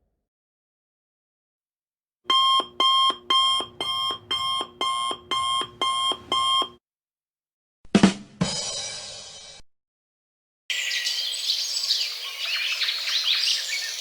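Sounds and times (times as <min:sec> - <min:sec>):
electronic alarm beeping: 0:02.3 - 0:06.8.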